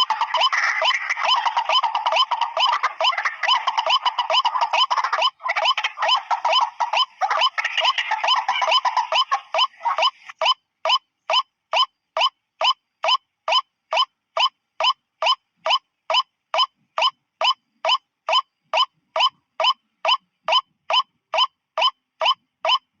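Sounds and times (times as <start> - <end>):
waterhen calls: 0.0 - 10.6.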